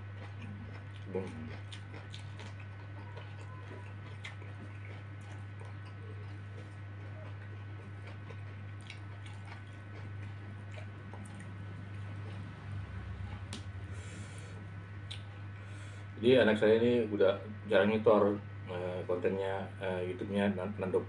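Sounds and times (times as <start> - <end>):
man chewing food: 0.0 - 16.0
low hum: 0.0 - 21.0.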